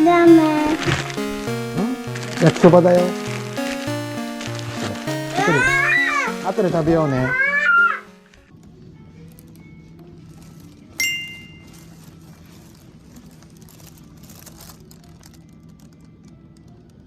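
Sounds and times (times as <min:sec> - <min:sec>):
steady low background: 0:00.0 - 0:07.0.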